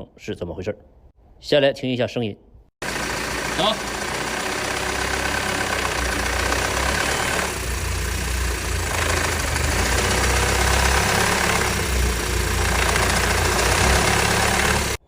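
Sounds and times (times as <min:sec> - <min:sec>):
car engine idling: 0:02.8 - 0:15.0
rhythmic engine clatter: 0:02.8 - 0:15.0.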